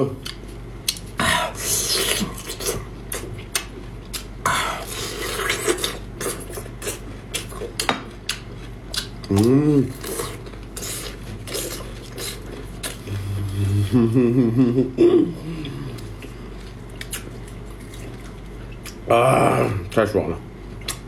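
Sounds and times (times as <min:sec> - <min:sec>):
chewing and slurping: 0:00.2 - 0:13.9, 0:15.9 - 0:19.0
person humming: 0:13.1 - 0:16.1.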